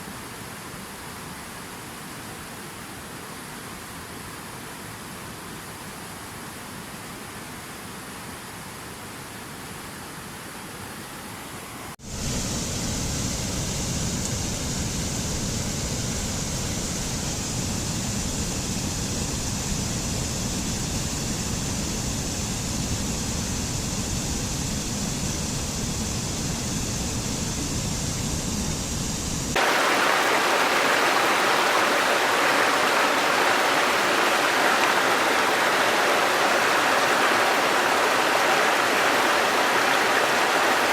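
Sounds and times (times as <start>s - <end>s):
hiss of spray: 12.0s - 40.9s
waterfall rushing: 29.5s - 40.9s.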